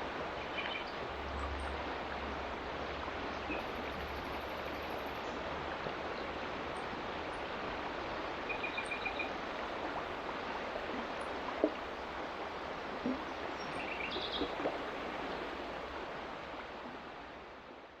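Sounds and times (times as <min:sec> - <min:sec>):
sharp click from water: 0:13.0 - 0:14.9.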